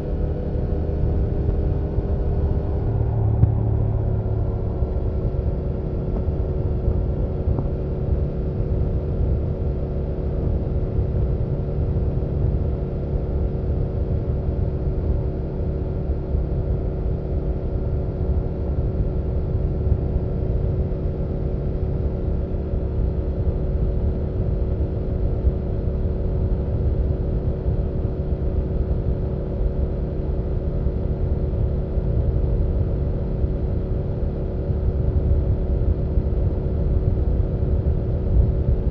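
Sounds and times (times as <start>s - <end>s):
motorcycle engine cruising: 0.8s - 6.4s.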